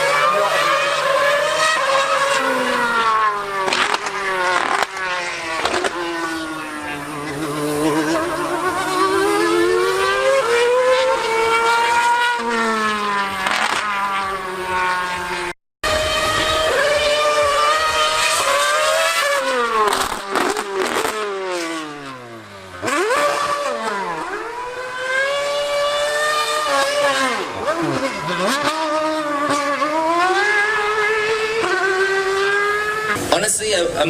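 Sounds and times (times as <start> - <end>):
racing car engine at high revs: 0.0 - 34.0.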